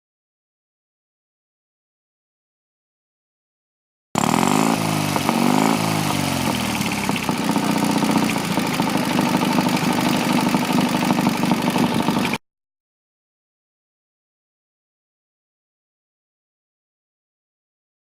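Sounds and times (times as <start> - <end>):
motorcycle engine revving and idling: 4.2 - 12.4.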